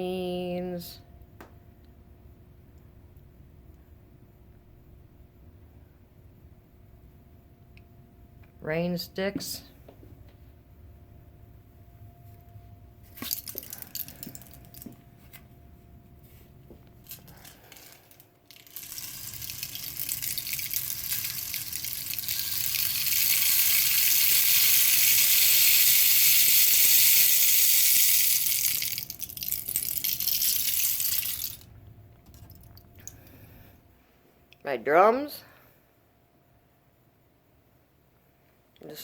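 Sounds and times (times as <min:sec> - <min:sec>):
rain stick pebbles pouring: 0:13.2 - 0:14.9, 0:17.1 - 0:31.7.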